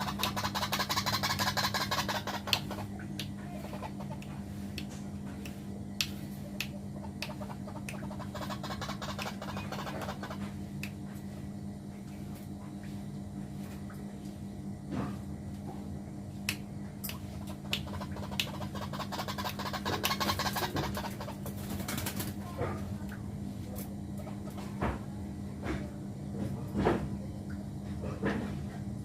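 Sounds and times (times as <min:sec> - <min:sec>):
birds clicking and tapping: 0:00.0 - 0:05.0, 0:06.0 - 0:10.6, 0:17.1 - 0:22.5
steady low hum: 0:00.0 - 0:29.0.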